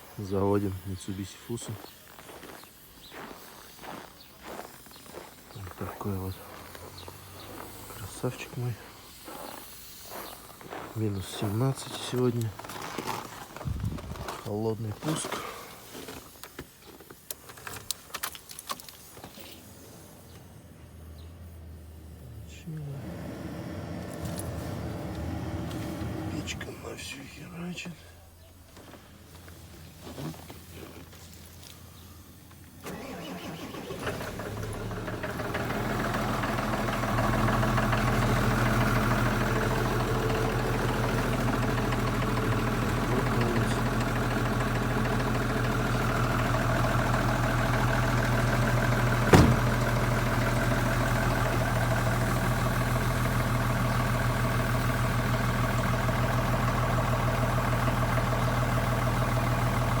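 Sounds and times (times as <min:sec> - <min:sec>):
diesel truck engine idling: 0:19.6 - 0:29.8, 0:32.8 - 1:00.0.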